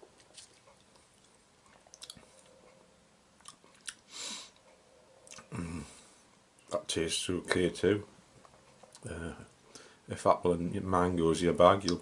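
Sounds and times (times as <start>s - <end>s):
person chewing food: 0.0s - 2.8s, 3.4s - 5.7s
breathy hiss: 4.1s - 4.6s.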